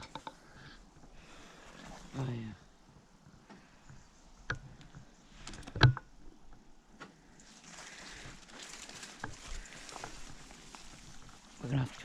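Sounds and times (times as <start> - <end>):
footsteps rustling through undergrowth: 7.3 - 12.0.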